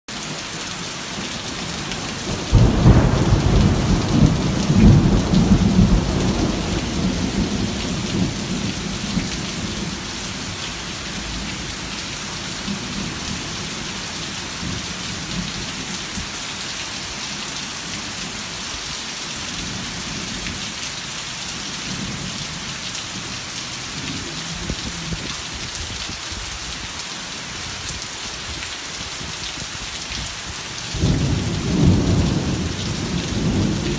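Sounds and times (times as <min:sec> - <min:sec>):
rain falling: 0:00.1 - 0:33.9
faint rumbles of thunder: 0:02.2 - 0:10.0, 0:30.9 - 0:33.9
loud thunderclap: 0:02.3 - 0:09.9, 0:31.0 - 0:33.9.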